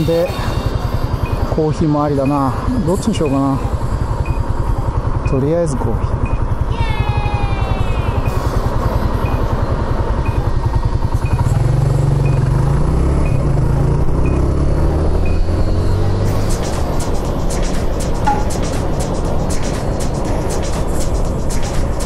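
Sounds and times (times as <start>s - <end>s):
short high beeps: 0.0s - 4.6s, 6.2s - 6.6s, 8.2s - 10.6s, 11.2s - 12.6s, 15.2s - 15.5s
motorcycle engine: 0.0s - 22.0s
music: 16.2s - 22.0s.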